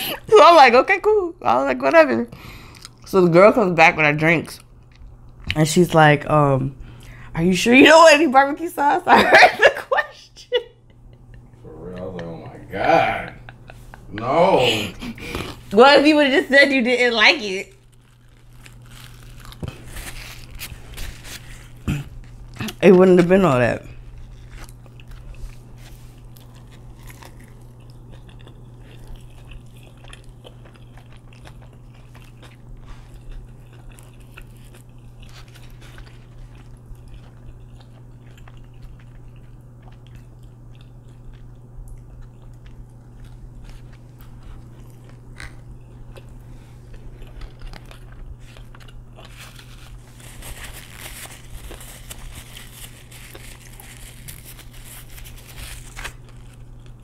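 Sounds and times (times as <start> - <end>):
steady low hum: 0.0 - 57.0
crunchy chewing and bites: 17.7 - 22.9, 23.9 - 57.0
paper napkin rustling: 17.8 - 22.5, 49.2 - 56.8.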